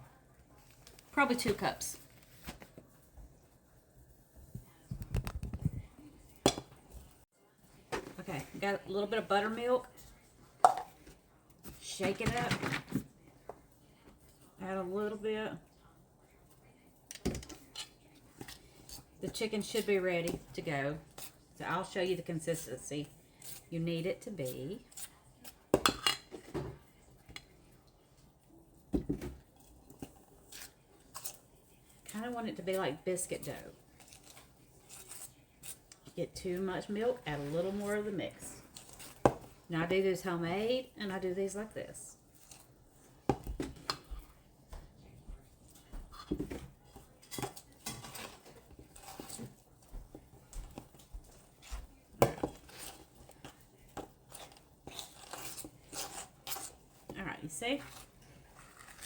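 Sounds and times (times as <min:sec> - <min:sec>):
spoon scraping mixing bowl: 0:17.1 - 0:26.6, 0:29.6 - 0:44.4, 0:45.2 - 0:59.0.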